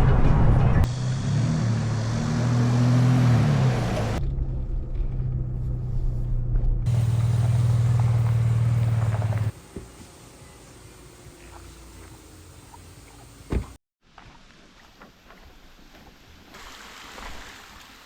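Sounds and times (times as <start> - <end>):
outboard motor droning: 6.9 - 13.8.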